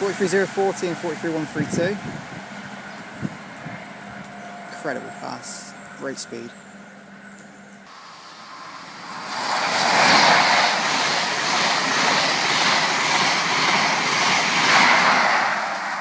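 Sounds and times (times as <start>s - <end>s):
rush of wheel and air noise: 0.0s - 4.6s, 7.9s - 16.0s
train passing at speed: 0.0s - 16.0s.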